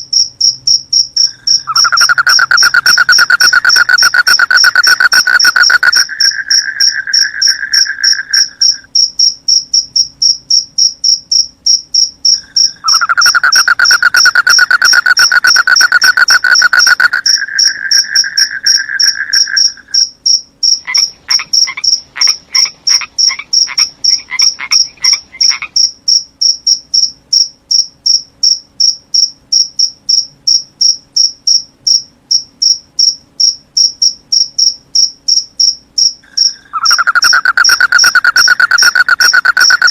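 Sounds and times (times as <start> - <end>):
crickets chirping: 0.0 - 39.9
frogs pulsed calls: 1.0 - 9.1, 12.2 - 26.0, 36.2 - 39.9
frogs trilling: 1.2 - 9.0, 12.2 - 25.9, 36.2 - 39.9.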